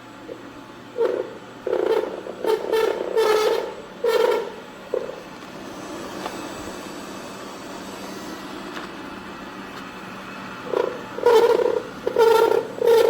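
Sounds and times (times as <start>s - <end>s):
robot vacuum whirring: 10.6s - 13.0s.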